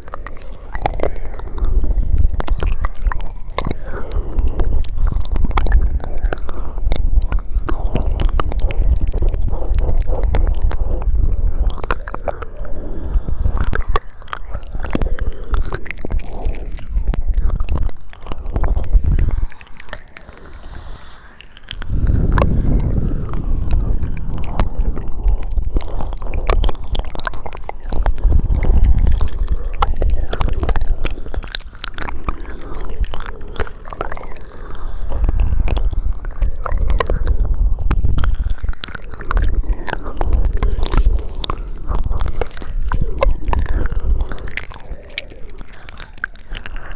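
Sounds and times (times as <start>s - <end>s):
low rumble: 0.0s - 33.6s
wet mouth clicks and smacks: 0.0s - 46.9s.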